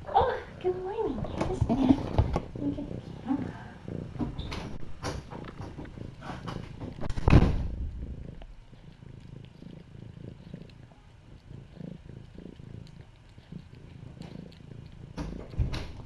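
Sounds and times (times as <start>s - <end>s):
cat purring: 0.0s - 16.0s
loud knock: 6.4s - 8.0s.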